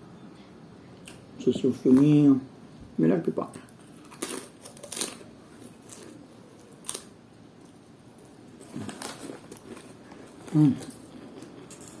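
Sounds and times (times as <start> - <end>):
chips crunching while chewed: 3.6 - 12.0.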